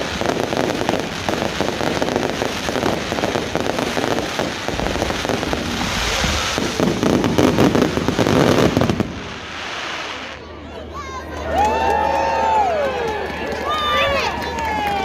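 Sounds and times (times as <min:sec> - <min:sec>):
fireworks crackling and popping: 0:00.0 - 0:10.5.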